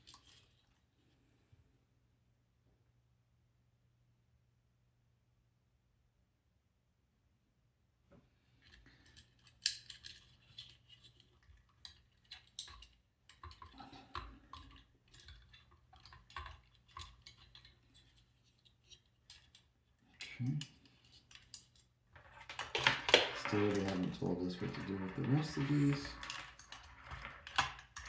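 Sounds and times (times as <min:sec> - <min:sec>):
rustling of cables: 0:08.6 - 0:28.0.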